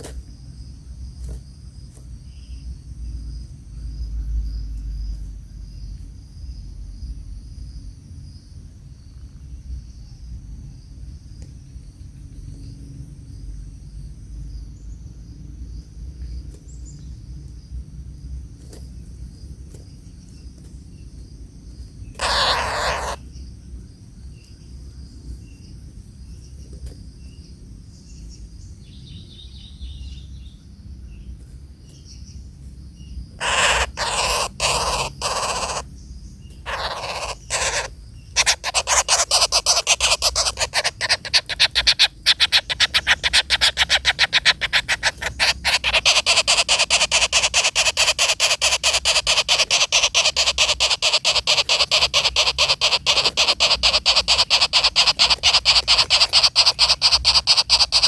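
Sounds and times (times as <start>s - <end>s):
harsh raspy bird calls: 22.0s - 23.4s, 33.4s - 58.0s
high-pitched insect drone: 22.2s - 23.2s, 33.4s - 58.0s.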